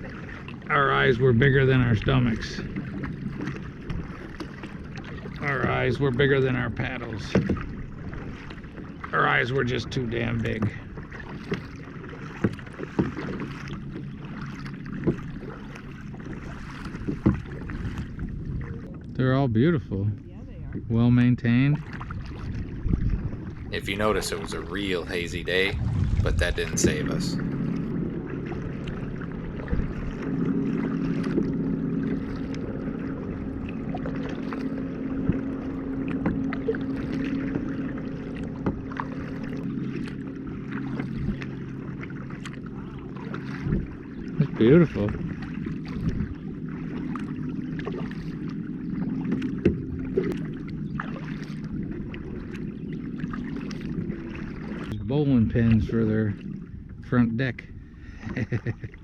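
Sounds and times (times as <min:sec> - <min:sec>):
paddle strokes dripping water: 0:00.0 - 0:19.2, 0:21.6 - 0:26.2, 0:26.8 - 0:57.1
paddle knocking on kayak: 0:07.3 - 0:09.1, 0:10.3 - 0:18.2, 0:38.4 - 0:39.6
water washing: 0:23.4 - 0:31.4
steady low hum: 0:23.5 - 0:34.1.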